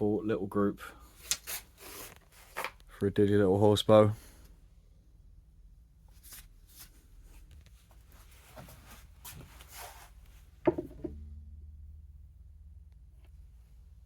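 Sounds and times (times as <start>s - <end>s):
rustling and scraping: 1.2s - 2.8s, 6.1s - 11.2s
sharp knock: 10.7s - 11.5s.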